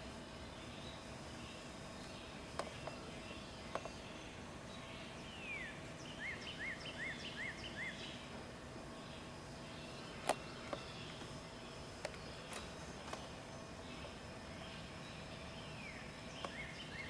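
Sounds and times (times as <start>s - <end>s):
bird singing: 0.0s - 17.0s
outdoor background noise: 0.0s - 17.0s
sharp clicks: 10.2s - 11.3s.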